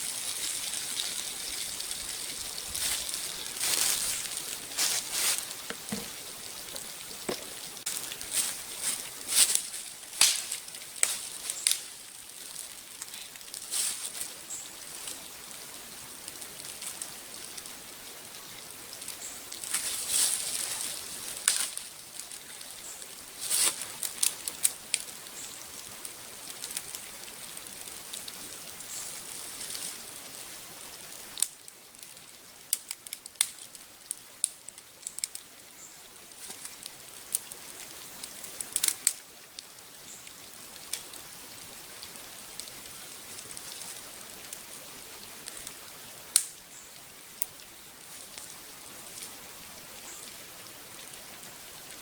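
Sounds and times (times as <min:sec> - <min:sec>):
fat popping and crackling: 0:05.4 - 0:08.2, 0:10.2 - 0:11.8.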